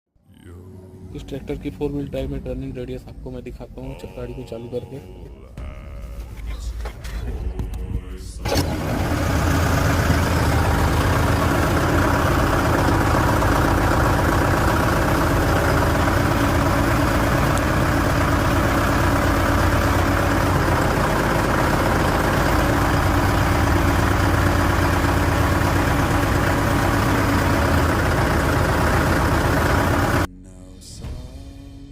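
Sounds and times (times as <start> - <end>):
tractor diesel engine running: 8.4 - 30.3.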